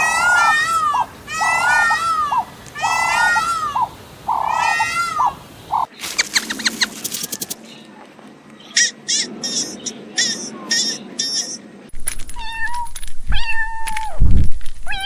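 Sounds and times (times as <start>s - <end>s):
animal calling: 0.0s - 7.6s, 8.6s - 11.7s.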